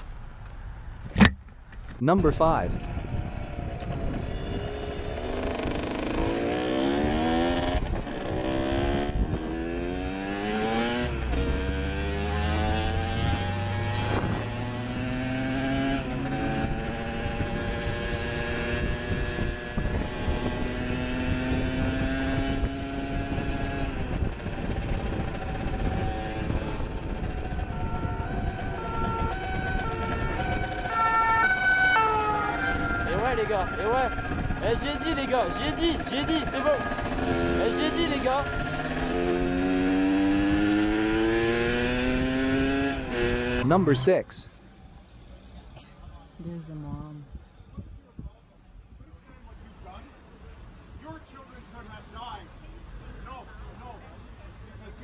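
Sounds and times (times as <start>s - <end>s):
vehicle engine accelerating: 2.6s - 45.7s.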